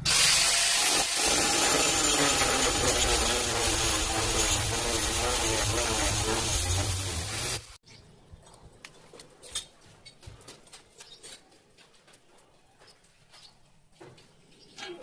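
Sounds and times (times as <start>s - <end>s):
electric power tool running: 0.1s - 7.8s.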